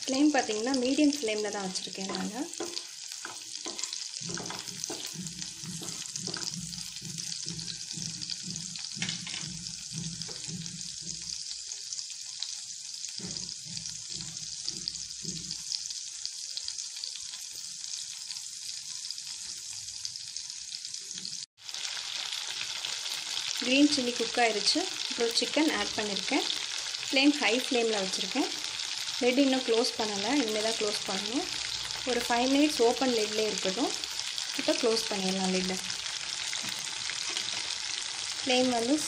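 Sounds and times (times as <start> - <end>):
chillies sizzling in butter: 0.0 - 39.0
wooden spatula stirring: 0.8 - 11.6, 35.6 - 38.4.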